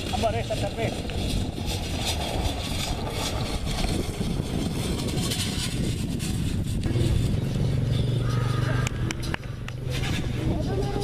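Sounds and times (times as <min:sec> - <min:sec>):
rough rumbling noise: 0:00.0 - 0:11.0
steady low engine hum: 0:01.0 - 0:11.0
vehicle engine running: 0:06.6 - 0:11.0.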